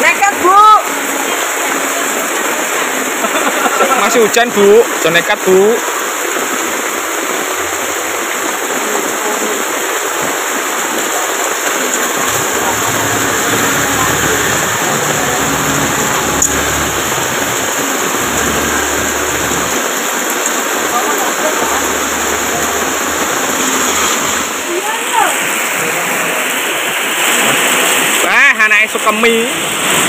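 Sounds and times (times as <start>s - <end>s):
heavy rain pouring on pavement: 0.0s - 30.0s
runoff water rushing: 0.0s - 30.0s
low rumble: 12.1s - 20.0s.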